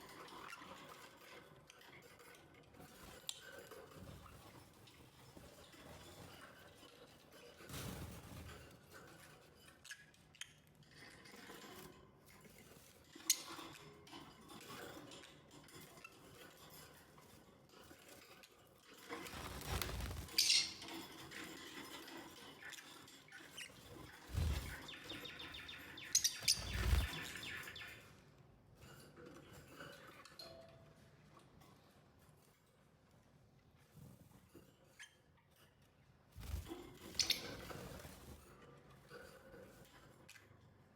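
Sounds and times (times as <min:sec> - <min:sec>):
lovebirds chirping and chattering: 0:19.7 - 0:20.9, 0:23.3 - 0:28.0, 0:36.4 - 0:38.1.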